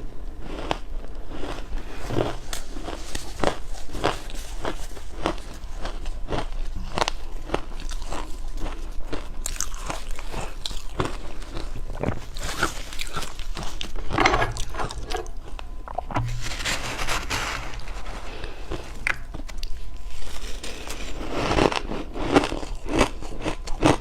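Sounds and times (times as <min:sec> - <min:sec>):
ice crunching: 0:16.0 - 0:19.1.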